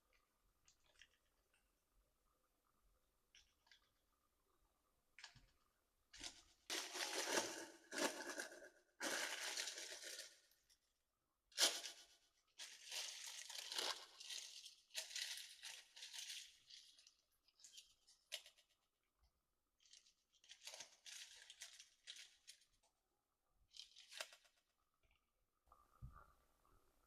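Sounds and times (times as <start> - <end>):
crinkling tearing noise: 11.6 - 18.6, 19.8 - 22.9.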